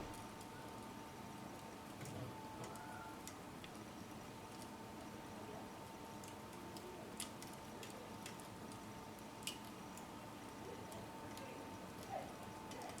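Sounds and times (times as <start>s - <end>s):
fire crackling and popping: 0.0s - 2.1s, 6.0s - 13.0s
faint steady hum: 0.0s - 13.0s.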